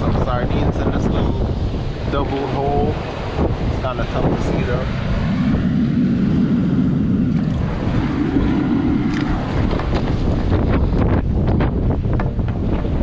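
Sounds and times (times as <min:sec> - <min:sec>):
wind buffeting microphone: 0:00.0 - 0:13.0
ocean surf: 0:01.2 - 0:11.2.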